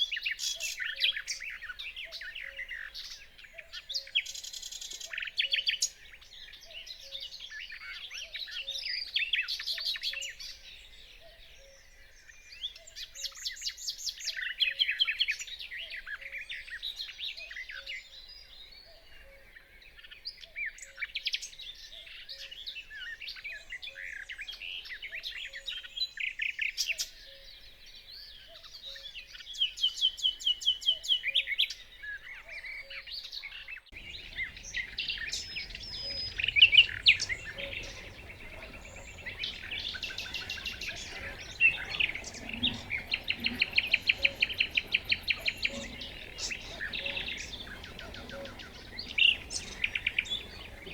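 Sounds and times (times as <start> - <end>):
nightingale singing: 33.9 - 50.9.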